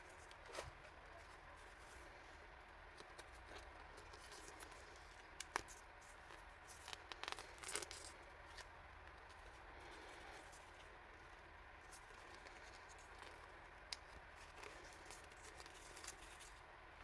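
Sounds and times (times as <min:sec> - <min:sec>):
packaging crinkling: 0:03.0 - 0:08.7, 0:11.9 - 0:16.6.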